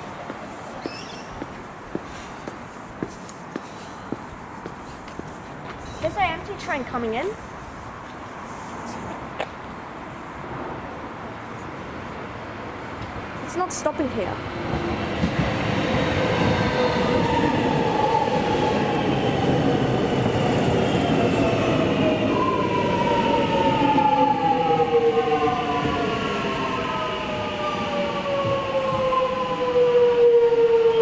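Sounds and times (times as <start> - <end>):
train wheels rumbling on rails: 12.9 - 29.8.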